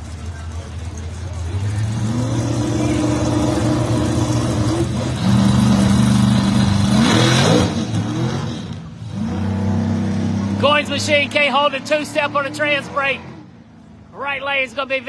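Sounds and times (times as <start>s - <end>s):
drag race car engines revving: 0.0s - 15.0s.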